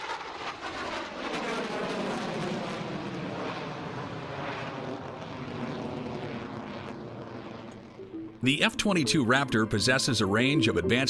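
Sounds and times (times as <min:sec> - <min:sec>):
fighter jet engines rushing: 0:00.0 - 0:08.1.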